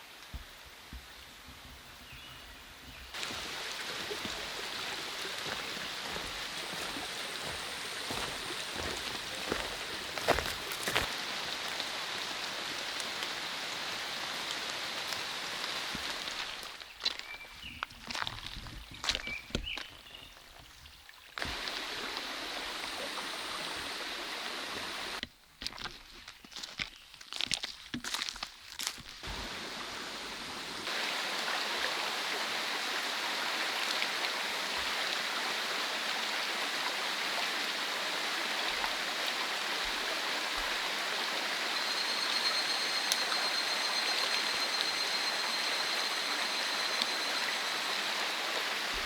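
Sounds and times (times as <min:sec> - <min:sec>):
steady rain hiss: 0:00.0 - 0:18.2, 0:21.4 - 0:25.2, 0:29.2 - 0:49.0
mountain stream rushing: 0:03.2 - 0:16.8, 0:21.4 - 0:25.2, 0:29.2 - 0:49.0.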